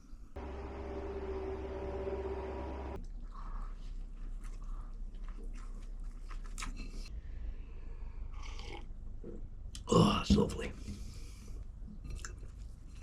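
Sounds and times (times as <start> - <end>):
steady hum: 0.4 - 3.0
chewing and crunching food: 3.0 - 7.2, 8.1 - 9.9, 11.6 - 13.0.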